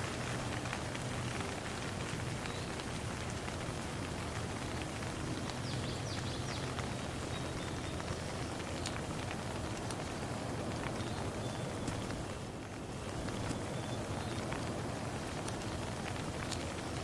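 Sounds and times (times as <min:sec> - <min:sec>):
rain on a pond: 0:00.0 - 0:17.0.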